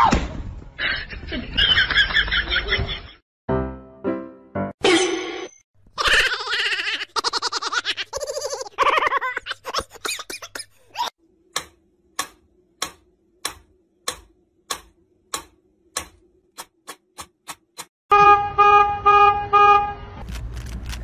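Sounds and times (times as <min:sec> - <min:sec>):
car horn honking: 0:18.1 - 0:20.2.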